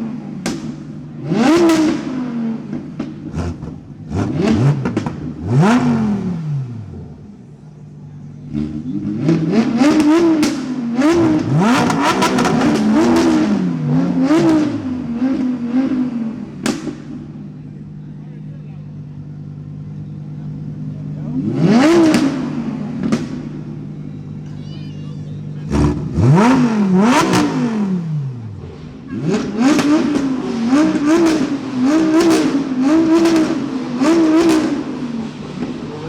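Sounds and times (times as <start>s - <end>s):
car engine idling: 0.0s - 36.0s
car engine revving: 0.0s - 36.0s.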